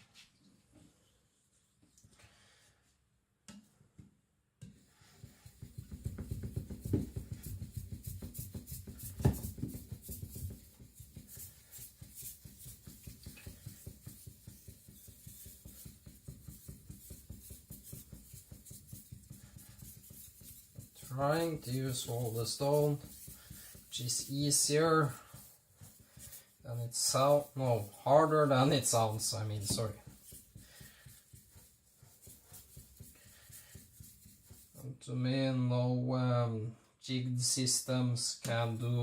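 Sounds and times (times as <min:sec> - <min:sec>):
knock: 0:05.6 - 0:08.3
blade scrubbing on whetstone: 0:07.2 - 0:34.8.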